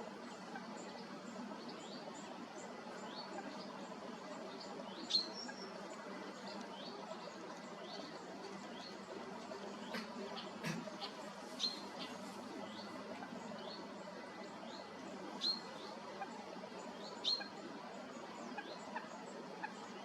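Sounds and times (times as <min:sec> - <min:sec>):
faint outdoor background hiss: 0:00.0 - 0:20.0
high piping bird calls: 0:04.6 - 0:20.0.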